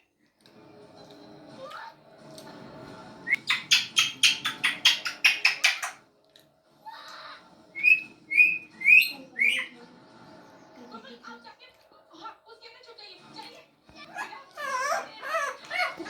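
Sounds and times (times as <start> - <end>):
parrot squawks: 7.8 - 9.7
parrot whistles: 7.8 - 9.7.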